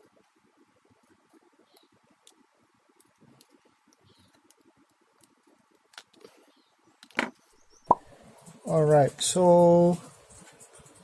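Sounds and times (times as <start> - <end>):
plastic parts clicking and scratching: 1.0 - 7.6.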